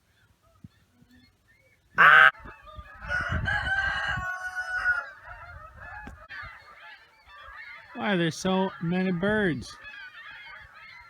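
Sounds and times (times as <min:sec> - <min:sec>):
geese honking: 0:02.0 - 0:03.1, 0:04.4 - 0:11.0.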